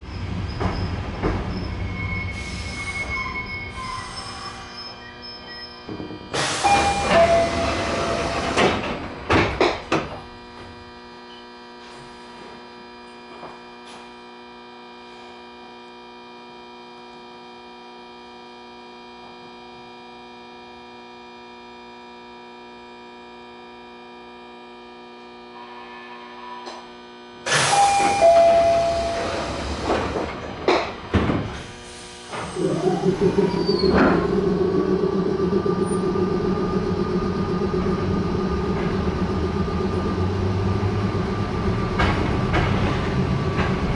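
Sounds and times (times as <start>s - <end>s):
train doors hissing: 0.4s - 10.2s, 27.4s - 34.9s
falling two-note door tone: 6.6s - 8.4s, 27.7s - 29.8s
electrical hum with whining tones: 32.4s - 42.1s.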